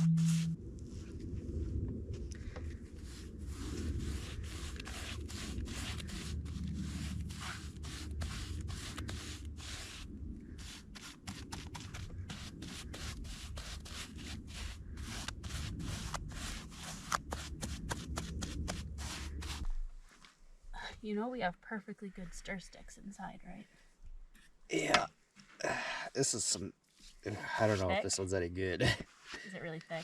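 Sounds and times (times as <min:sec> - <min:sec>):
brushing or scraping strokes: 0:00.0 - 0:01.2, 0:02.4 - 0:20.4, 0:26.9 - 0:28.1
steady low rumble: 0:00.0 - 0:23.6.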